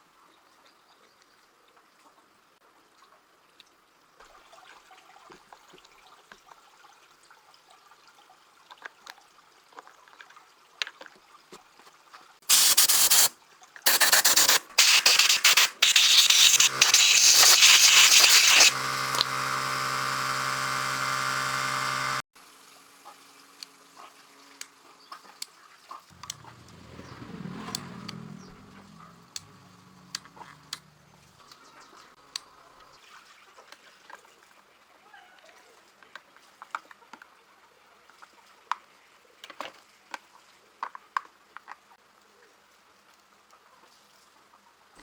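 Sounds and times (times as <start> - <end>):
loud hissing bursts: 12.5 - 13.3, 13.9 - 22.2
steady machine hum: 13.9 - 22.2.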